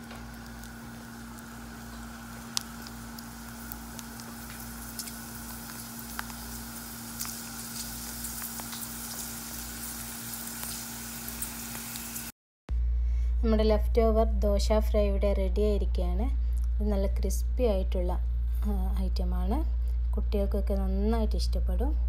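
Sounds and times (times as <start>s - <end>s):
food deep-frying in oil: 0.0s - 12.3s
low hum: 12.7s - 22.0s.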